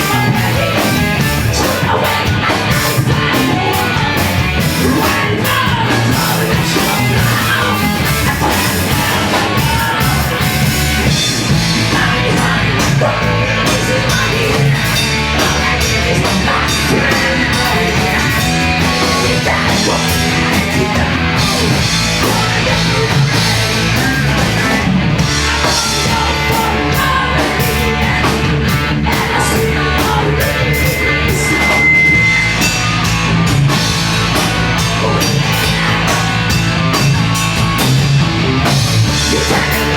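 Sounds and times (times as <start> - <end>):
live screamo band playing: 0.0 - 39.9
high steady tone: 29.1 - 34.5.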